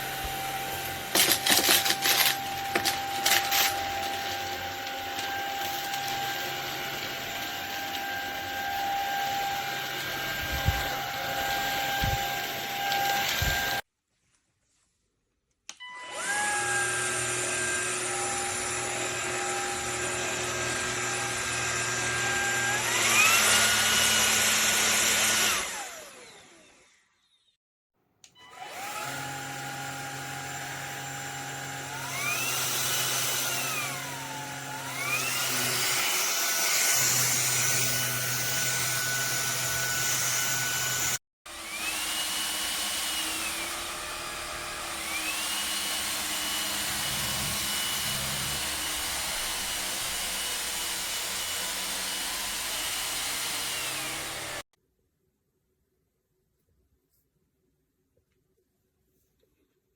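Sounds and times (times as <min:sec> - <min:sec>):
vacuum cleaner motor whine: 0:00.0 - 0:13.8, 0:15.8 - 0:27.4, 0:28.4 - 0:54.6.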